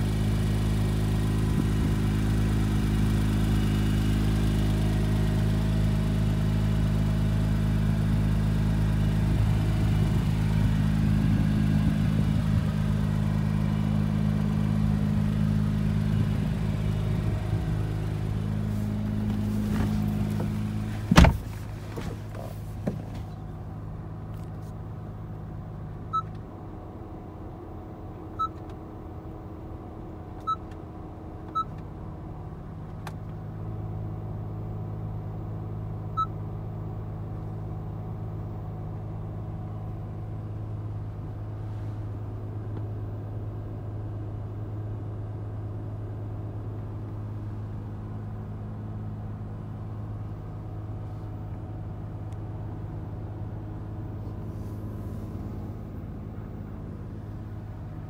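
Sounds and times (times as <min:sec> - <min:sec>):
car engine idling: 0:00.0 - 0:58.0
car door shutting: 0:18.5 - 0:23.4
short electronic beeps: 0:28.4 - 0:28.6.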